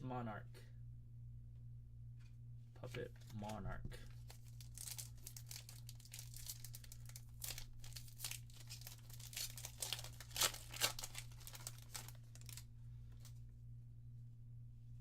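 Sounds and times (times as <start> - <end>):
low electrical hum: 0.0 - 15.0
foil wrapper crinkling: 4.1 - 13.3.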